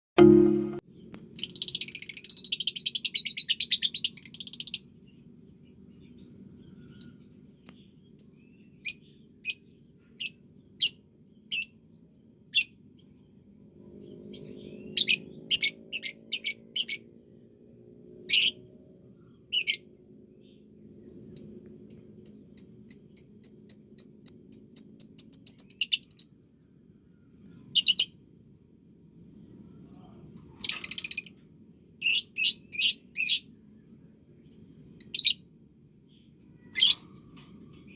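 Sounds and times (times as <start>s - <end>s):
faint low hum: 0.2s - 37.9s
lovebird chirping: 6.1s - 11.8s, 14.1s - 17.1s, 19.5s - 26.4s, 27.6s - 28.2s, 35.0s - 35.4s, 36.2s - 37.3s.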